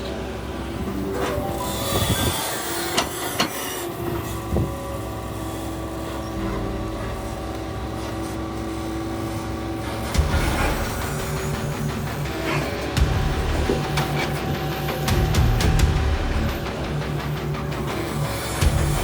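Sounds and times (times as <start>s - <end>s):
excavator diesel engine running: 0.0s - 19.0s
metallic clanks of bucket and tracks: 9.9s - 15.6s.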